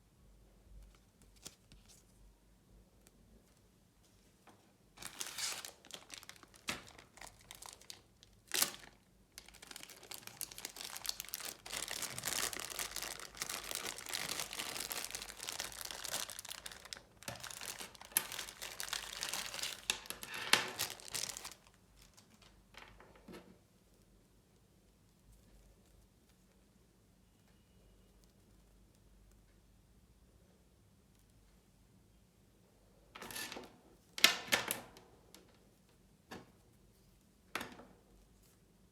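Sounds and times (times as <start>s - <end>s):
packaging crinkling and rustling: 5.0s - 22.6s.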